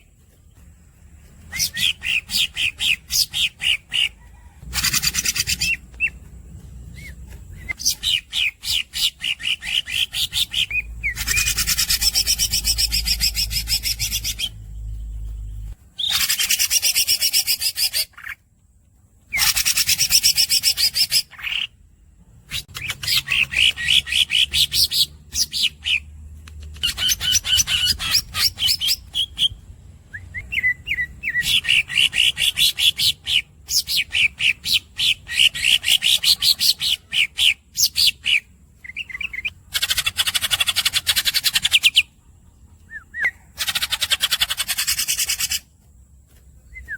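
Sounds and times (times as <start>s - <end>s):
bird singing rapid trills: 0.0s - 18.4s, 19.3s - 45.7s
low hum: 4.1s - 16.0s.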